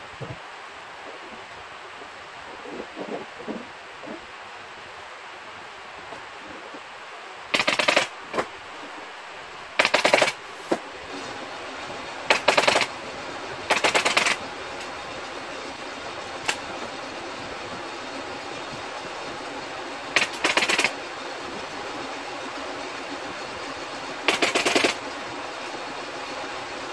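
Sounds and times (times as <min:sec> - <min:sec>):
pneumatic staple gun firing: 0:12.3 - 0:12.9, 0:13.7 - 0:14.4, 0:20.2 - 0:20.9, 0:24.3 - 0:25.0.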